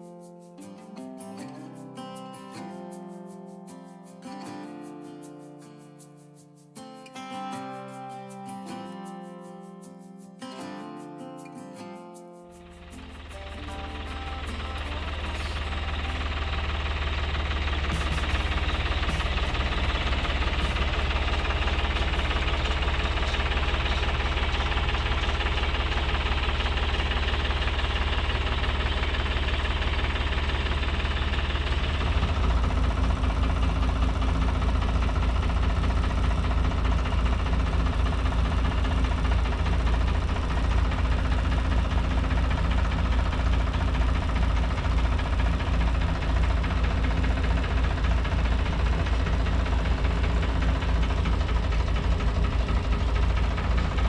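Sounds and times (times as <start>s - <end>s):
tractor engine under load: 12.6s - 54.0s.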